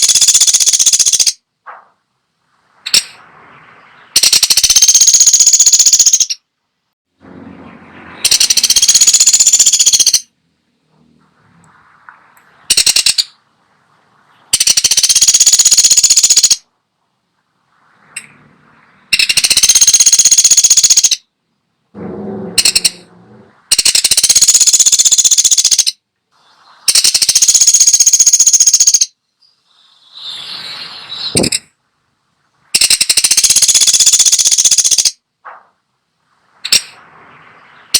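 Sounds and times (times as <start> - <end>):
woodpecker rattling calls: 0.0 - 1.4, 2.8 - 3.2, 3.8 - 6.4, 8.2 - 10.3, 12.6 - 13.4, 14.5 - 16.7, 19.1 - 21.3, 22.5 - 23.1, 23.7 - 26.0, 26.9 - 30.4, 31.2 - 31.7, 32.8 - 35.2, 36.6 - 37.0.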